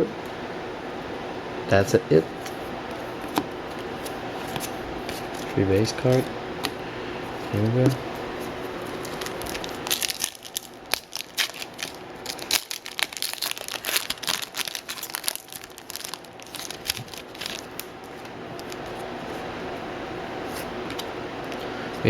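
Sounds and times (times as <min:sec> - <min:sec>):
plastic wrapper tearing and crinkling: 0:08.8 - 0:19.0.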